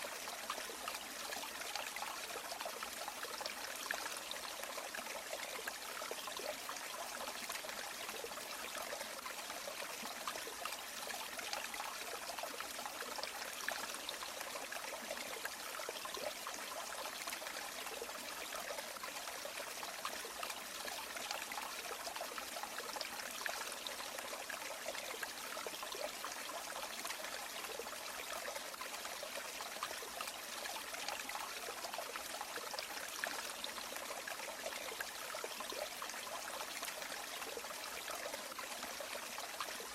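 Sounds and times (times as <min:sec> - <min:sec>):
river water babbling: 0:00.0 - 0:39.9.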